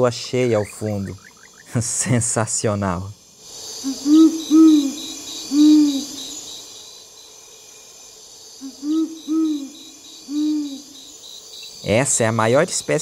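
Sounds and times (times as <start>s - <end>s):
insects pulsing: 0.0s - 13.0s
owl hooting: 0.4s - 1.7s, 3.6s - 6.8s, 8.6s - 11.9s.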